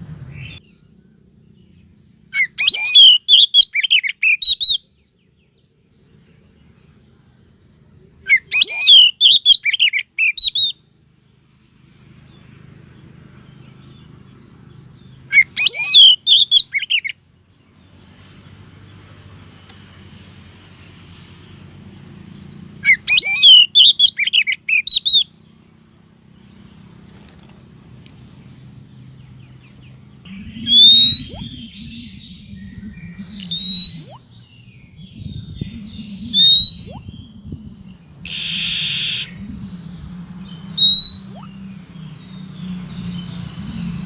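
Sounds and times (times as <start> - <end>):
bird warbling calls: 1.8 - 4.8, 8.2 - 10.8, 13.4 - 17.6, 22.0 - 44.0.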